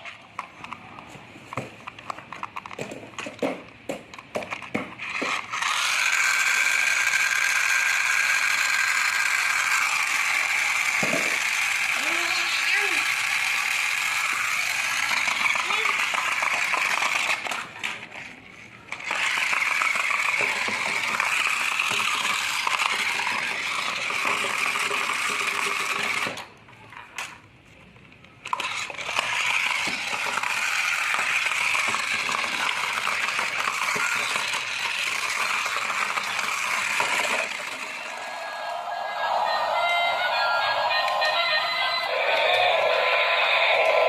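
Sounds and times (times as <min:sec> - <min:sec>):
toy motor and gears rattling: 0:04.4 - 0:27.3, 0:28.3 - 0:38.8.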